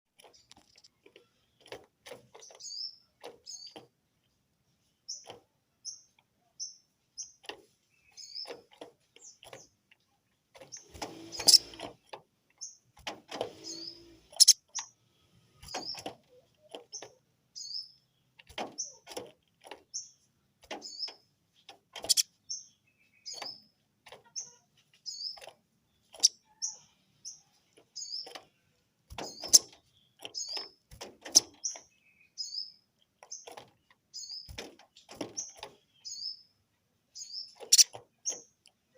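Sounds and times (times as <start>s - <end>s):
bird giving high chirps: 11.3s - 11.8s, 13.6s - 14.9s, 22.0s - 23.6s, 29.2s - 29.7s.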